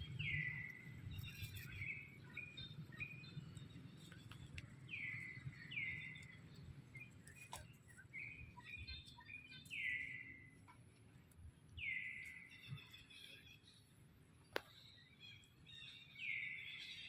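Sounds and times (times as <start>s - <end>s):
bird chirps: 0.0s - 10.8s, 11.8s - 13.9s, 14.5s - 17.0s.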